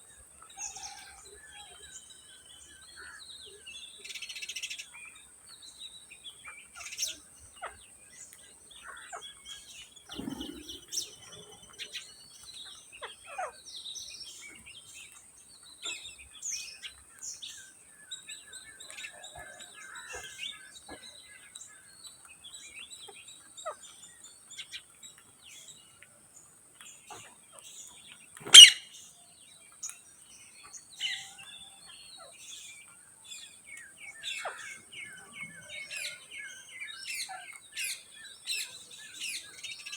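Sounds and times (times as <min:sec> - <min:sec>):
parrots chirping and chattering: 0:10.1 - 0:13.6, 0:28.4 - 0:28.9
parrot screeching: 0:28.5 - 0:28.8.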